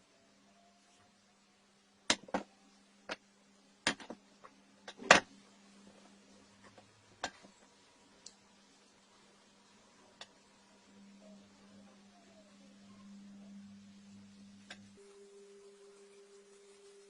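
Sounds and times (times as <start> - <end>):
faint steady hum: 0.0 - 17.0
hard objects knocking and clicking: 3.8 - 5.3.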